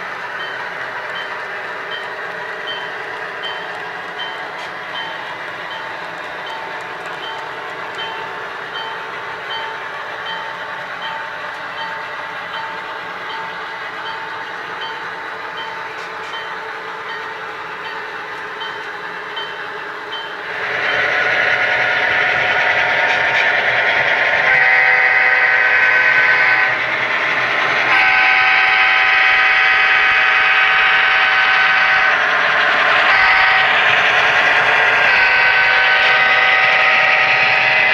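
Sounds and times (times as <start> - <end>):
model locomotive engine: 0.0 - 37.9
model locomotive bell dinging: 0.2 - 21.2
locomotive horn: 24.4 - 26.8, 27.9 - 32.2, 33.1 - 33.8, 35.0 - 37.9.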